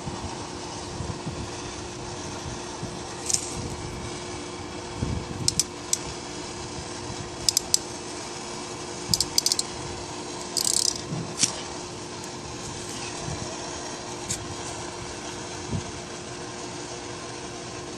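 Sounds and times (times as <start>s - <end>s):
steady hum: 0.0s - 17.9s
sharp plastic clicks and rattles: 5.4s - 6.0s, 7.5s - 7.8s, 9.1s - 9.7s, 10.5s - 11.5s.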